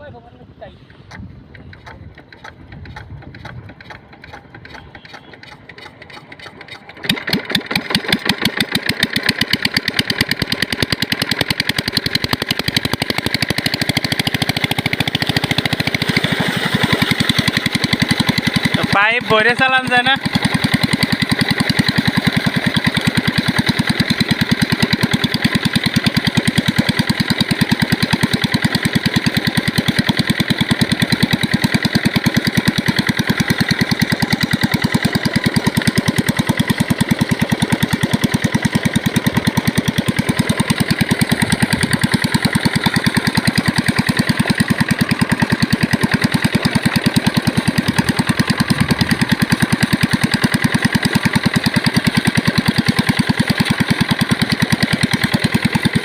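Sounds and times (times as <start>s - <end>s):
diesel pump engine chugging: 0.0s - 56.0s.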